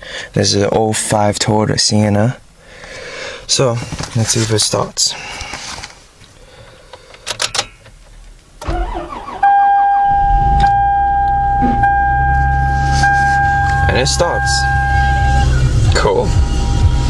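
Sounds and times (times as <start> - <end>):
high whine: 9.4 - 17.0
car engine running: 10.0 - 17.0.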